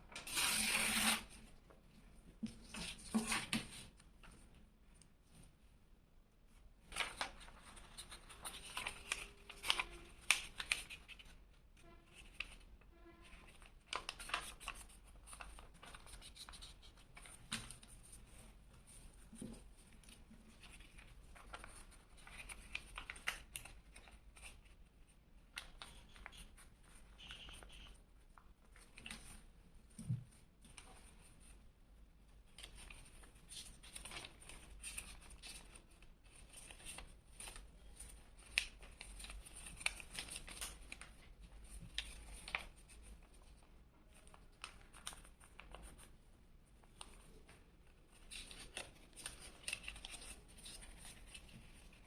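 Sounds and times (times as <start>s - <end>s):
paper rustling and creasing: 6.8s - 24.8s, 32.5s - 46.1s, 46.7s - 52.0s.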